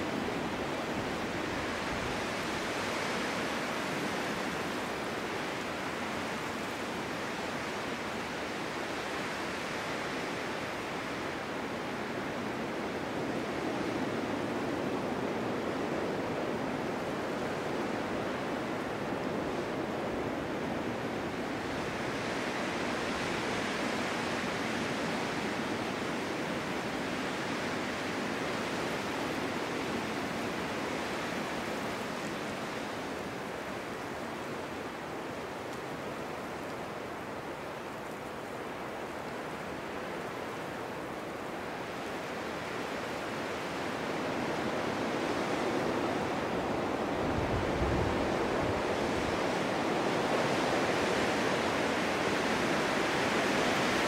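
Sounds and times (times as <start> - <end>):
snowstorm wind blowing: 0.0 - 54.0
wind buffeting microphone: 43.6 - 54.0.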